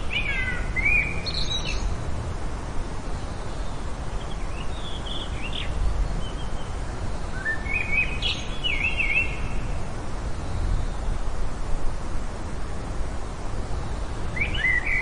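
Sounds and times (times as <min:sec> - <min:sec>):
outdoor background noise: 0:00.0 - 0:15.0
bird chirps: 0:14.4 - 0:15.0.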